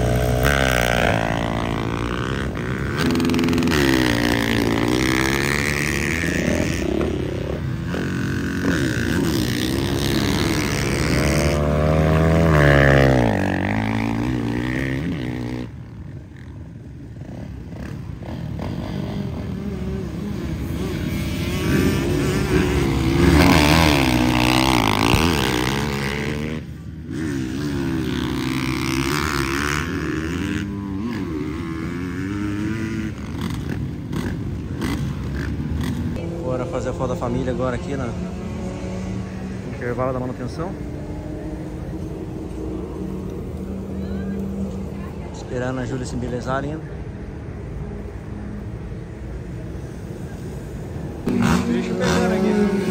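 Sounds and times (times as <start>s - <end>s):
motocross bike engines revving: 0.0s - 52.9s.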